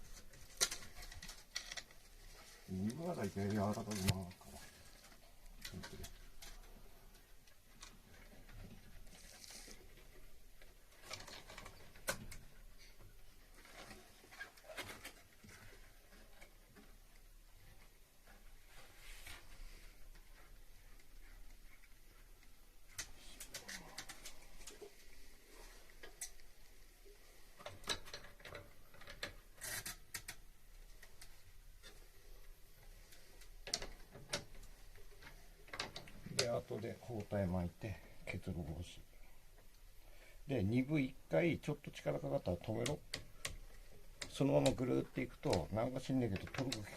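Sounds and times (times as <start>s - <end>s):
light clicks and rustling: 0.0s - 39.9s, 42.1s - 46.9s
short rustling scrapes: 18.6s - 20.1s.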